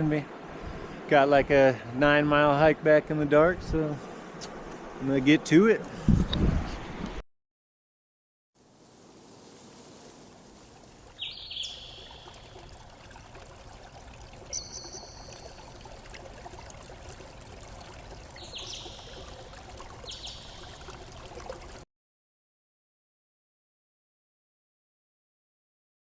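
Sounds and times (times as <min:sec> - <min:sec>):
running water rushing: 0:08.6 - 0:21.8
small bird chirping: 0:11.2 - 0:12.6, 0:14.5 - 0:15.5.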